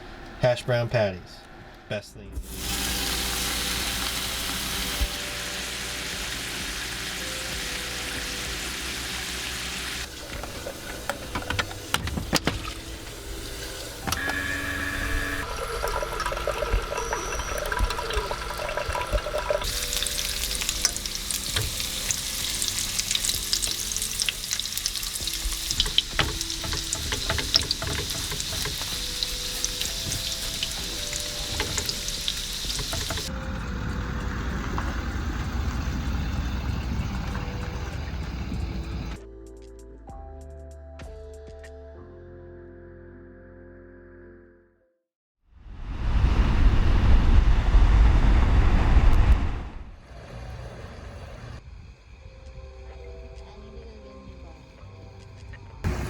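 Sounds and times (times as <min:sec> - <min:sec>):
food sizzling in a pan: 0:02.4 - 0:11.8, 0:12.8 - 0:33.3
running water: 0:02.4 - 0:33.4
quiet music with held notes: 0:02.4 - 0:34.9
kitchen clatter: 0:10.1 - 0:14.2, 0:15.7 - 0:33.3.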